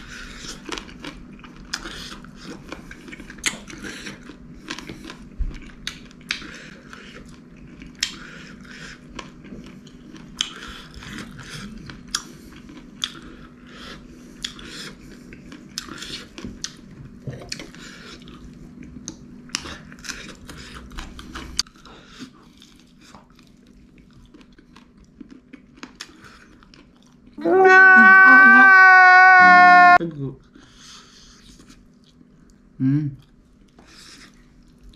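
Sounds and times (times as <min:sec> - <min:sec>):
chewing and crunching: 0:00.0 - 0:27.4, 0:30.4 - 0:34.9
loud steady pitched tone: 0:27.4 - 0:30.0.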